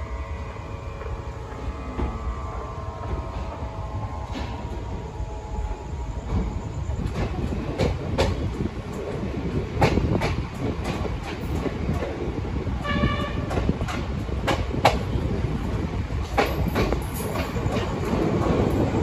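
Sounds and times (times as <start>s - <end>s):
train rumbling with wheel clacks: 0.0s - 19.0s
train horn blast: 12.8s - 13.6s.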